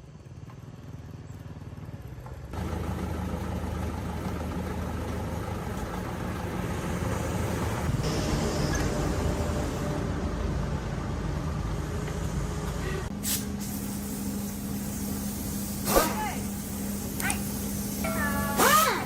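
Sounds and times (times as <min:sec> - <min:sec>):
vehicle engine running: 0:00.0 - 0:13.2.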